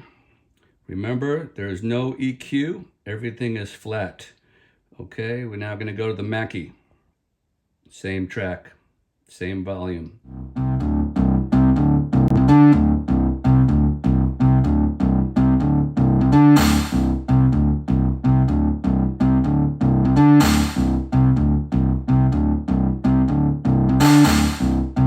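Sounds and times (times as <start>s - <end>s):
keyboard music over speaker: 10.3s - 25.0s.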